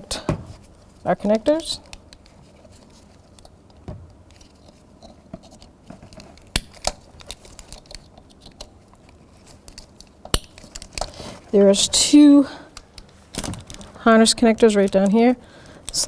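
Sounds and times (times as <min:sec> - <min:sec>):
plastic connectors clicking: 0:06.4 - 0:11.2.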